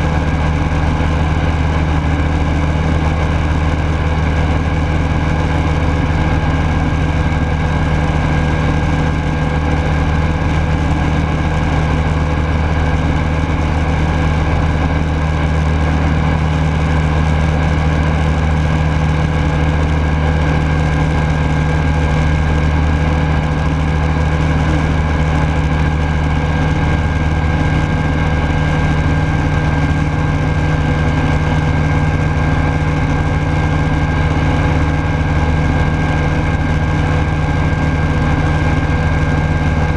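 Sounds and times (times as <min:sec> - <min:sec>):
light aircraft engine running: 0:00.0 - 0:39.9.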